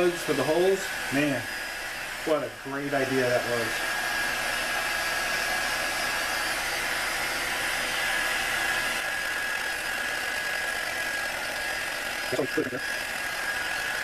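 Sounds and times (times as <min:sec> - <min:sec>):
heat gun blowing with whine: 0:00.0 - 0:14.0.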